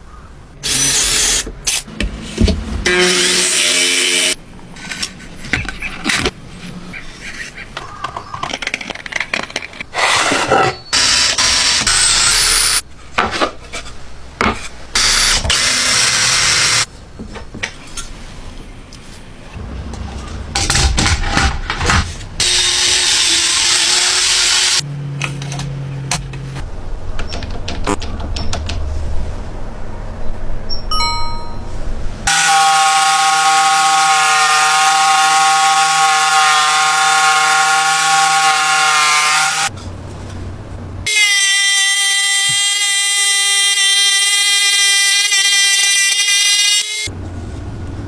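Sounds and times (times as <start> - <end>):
power tool running: 11.0 - 12.8, 15.0 - 16.9, 22.4 - 24.8, 32.3 - 39.7
power tool motor whining: 22.4 - 24.8.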